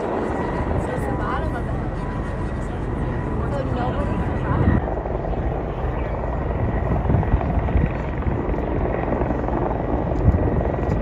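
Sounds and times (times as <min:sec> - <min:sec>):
helicopter rotor and engine drone: 0:00.0 - 0:11.0.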